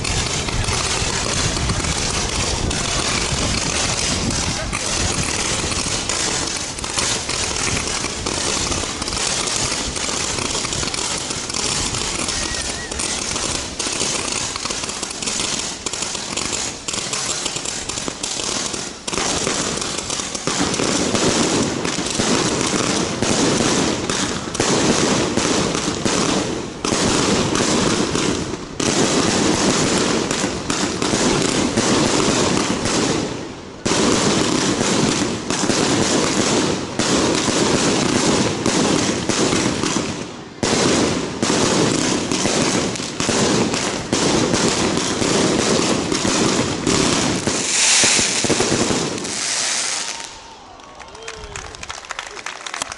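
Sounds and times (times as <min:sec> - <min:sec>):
fireworks crackling and hissing: 0:00.0 - 0:52.9.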